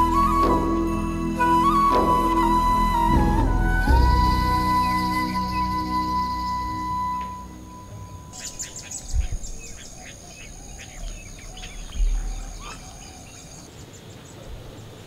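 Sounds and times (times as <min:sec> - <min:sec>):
dull low thumps: 0:00.0 - 0:07.1
birds chirping and calling: 0:04.8 - 0:14.4.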